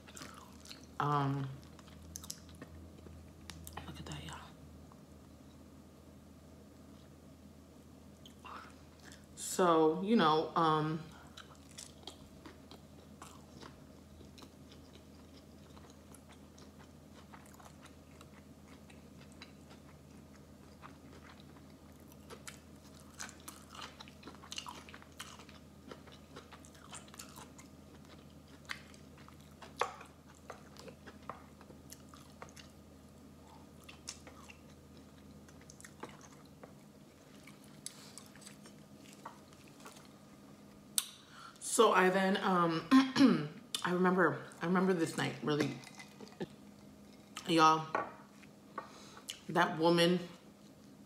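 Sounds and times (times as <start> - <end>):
steady low hum: 0.0 - 51.0
wet chewing clicks and crunches: 11.4 - 32.8, 33.4 - 40.2.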